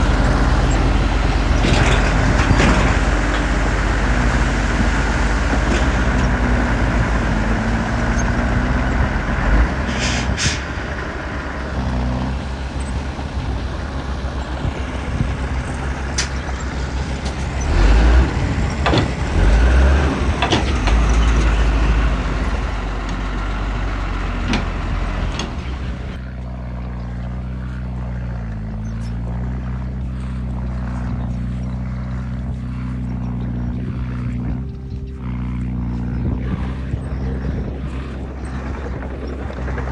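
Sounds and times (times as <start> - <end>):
diesel machinery engines running: 0.0 - 39.9
metal clanks and knocks: 1.5 - 3.6, 18.7 - 19.3, 20.3 - 21.5.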